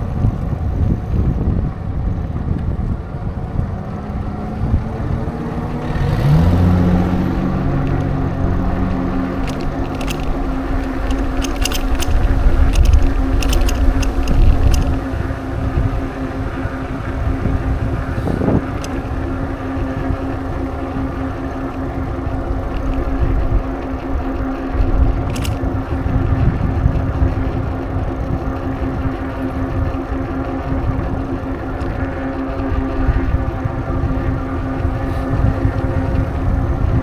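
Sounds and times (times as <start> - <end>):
steady hum: 0.0 - 37.0
wind rumbling on microphone: 0.0 - 37.0
sharp clicks: 7.7 - 15.2, 18.2 - 19.1, 22.6 - 26.2.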